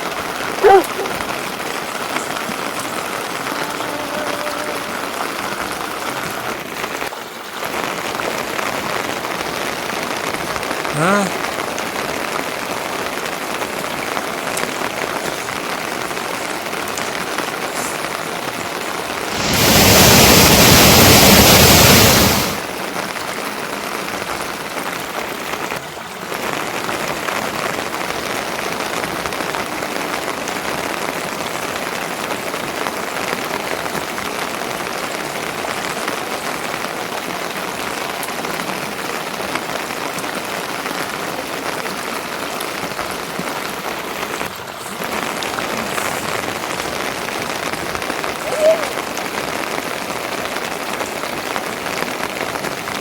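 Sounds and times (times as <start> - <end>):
steady rain falling: 0.0 - 53.0
loud rush of noise: 19.2 - 22.7.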